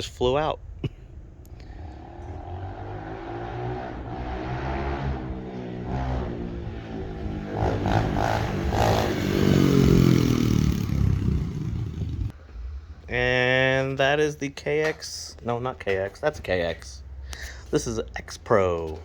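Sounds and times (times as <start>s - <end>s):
motorbike engine revving: 1.6s - 12.4s.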